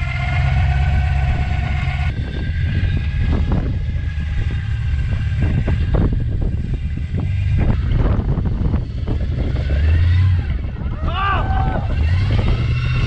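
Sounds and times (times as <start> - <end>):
truck engine running: 0.0 - 13.0
wind buffeting microphone: 0.0 - 13.0.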